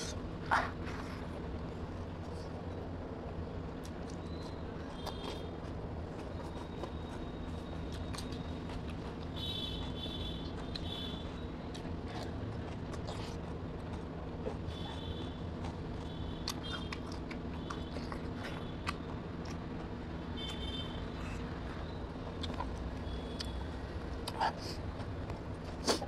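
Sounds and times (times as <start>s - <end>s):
cucumber bitten and chewed: 6.2s - 9.3s, 11.7s - 15.0s, 24.2s - 26.0s.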